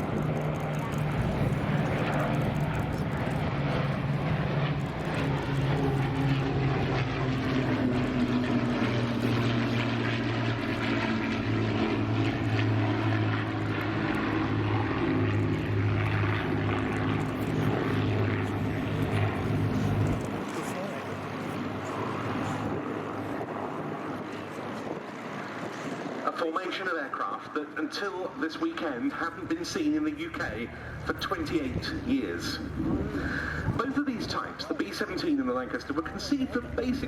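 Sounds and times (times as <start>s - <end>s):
propeller aircraft engines droning: 0.0s - 37.0s.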